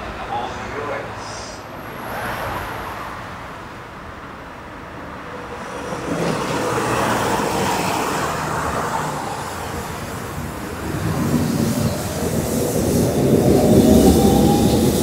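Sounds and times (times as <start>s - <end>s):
train rumble and motor hum: 5.1s - 15.0s.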